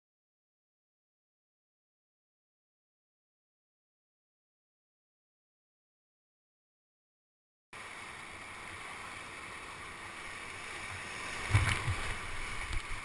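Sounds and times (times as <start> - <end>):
whitewater rushing: 7.8 - 13.0.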